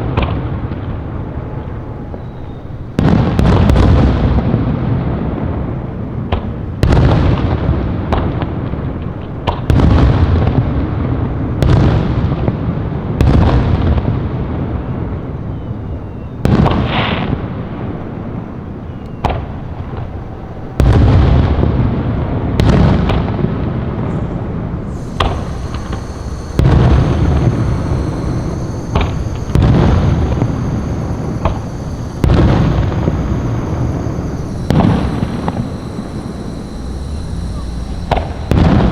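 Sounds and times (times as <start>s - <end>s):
fireworks booming: 24.9s - 38.9s.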